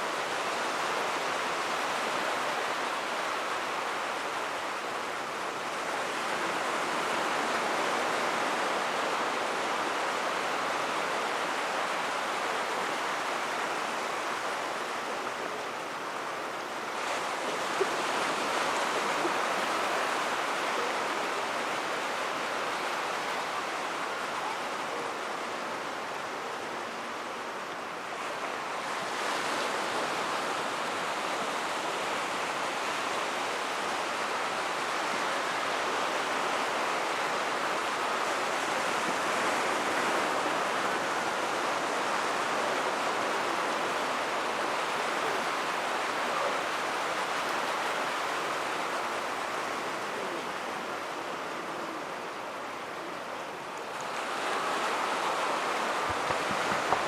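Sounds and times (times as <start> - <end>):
surf washing onto beach: 26.9 - 57.0.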